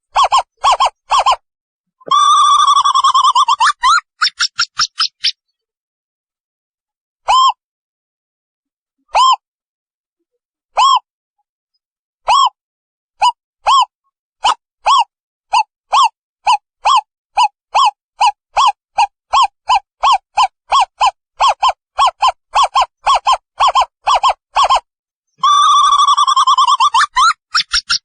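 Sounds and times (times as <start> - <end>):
owl hooting and trilling: 0.1 - 1.4, 2.1 - 5.4, 13.2 - 24.8, 25.4 - 28.0.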